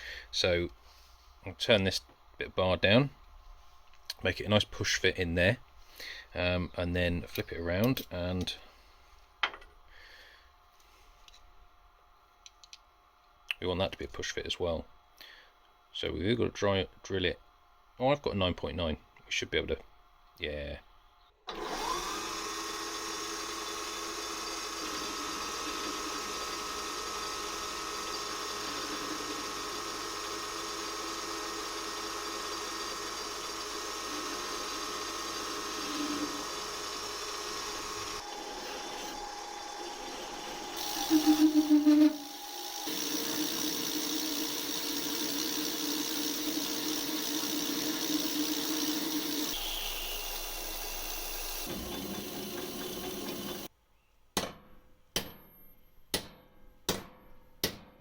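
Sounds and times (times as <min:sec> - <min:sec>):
metal lathe humming and whining: 0:21.5 - 0:53.7.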